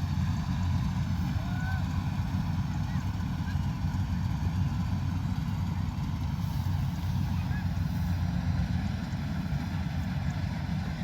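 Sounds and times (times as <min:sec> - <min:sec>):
combine harvester engine drone: 0:00.0 - 0:11.0.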